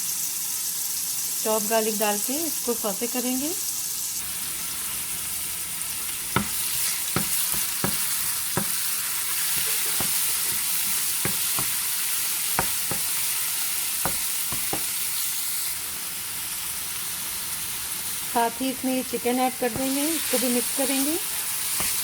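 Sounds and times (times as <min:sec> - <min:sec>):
garlic sizzling in hot oil: 0:00.0 - 0:22.0
utensil knocking against pan: 0:06.4 - 0:08.9, 0:09.8 - 0:11.9, 0:12.6 - 0:13.2, 0:14.1 - 0:14.9.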